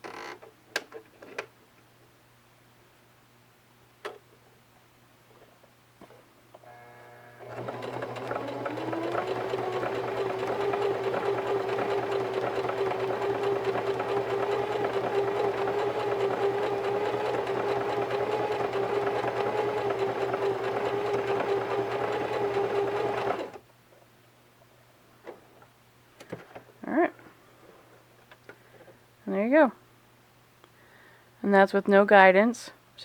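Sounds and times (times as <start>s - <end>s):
sewing machine stitching fabric: 7.4s - 23.6s.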